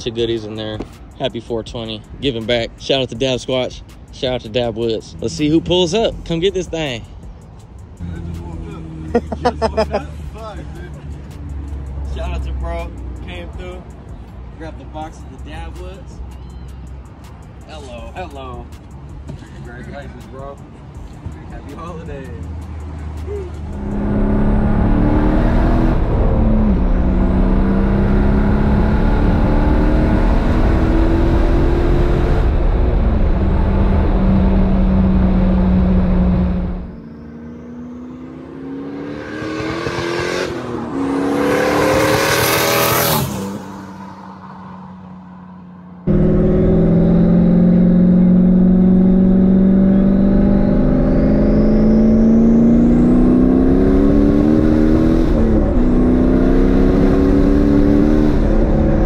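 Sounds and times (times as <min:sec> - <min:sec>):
car engine droning: 0:19.0 - 0:59.0
engine revving: 0:22.2 - 0:45.0, 0:46.0 - 0:59.0.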